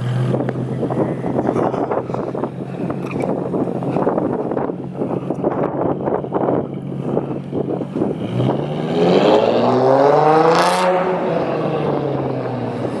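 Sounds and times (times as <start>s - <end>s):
car exhaust idling and revving: 0.0s - 13.0s
wind buffeting microphone: 0.0s - 13.0s.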